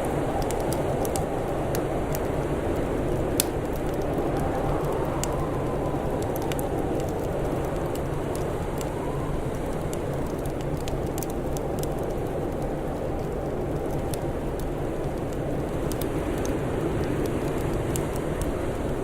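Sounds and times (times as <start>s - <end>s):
howling wind: 0.0s - 19.0s
wood fire crackling and popping: 0.0s - 19.0s.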